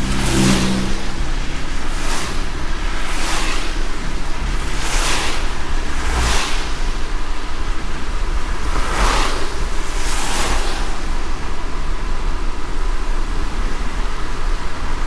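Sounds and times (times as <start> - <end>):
low road rumble: 0.0 - 15.0
rain hissing: 0.0 - 15.0
brief swish: 4.7 - 6.9.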